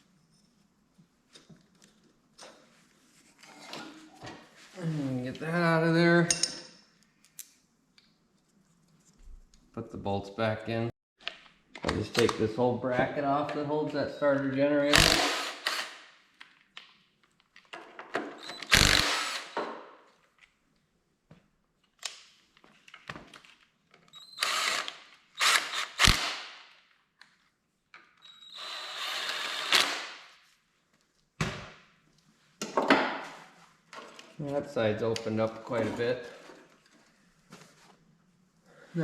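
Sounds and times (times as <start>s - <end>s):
power tool spinning bolts: 14.9s - 16.0s, 18.4s - 19.6s, 24.2s - 26.4s, 28.2s - 30.1s.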